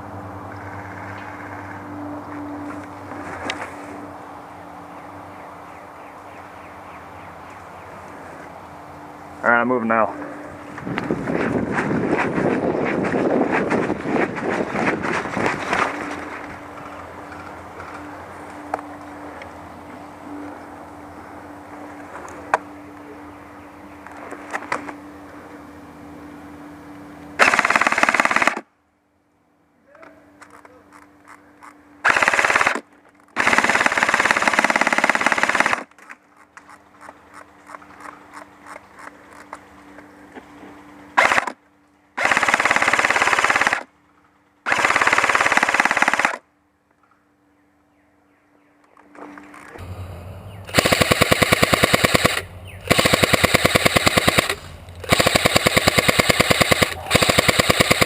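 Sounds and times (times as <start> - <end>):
airsoft gun firing bursts: 27.4 - 28.6, 32.0 - 32.8, 33.4 - 35.9, 41.2 - 41.6, 42.2 - 43.9, 44.7 - 46.4, 50.7 - 58.0.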